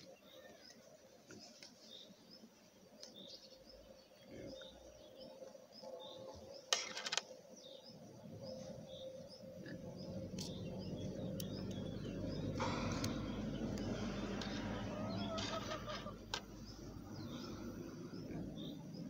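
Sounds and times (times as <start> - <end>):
small birds chirping: 0.0 - 19.0
rattle of sharp clicks: 6.7 - 7.3, 12.5 - 14.6
faint steady hum: 7.5 - 19.0
low rumble: 8.1 - 19.0.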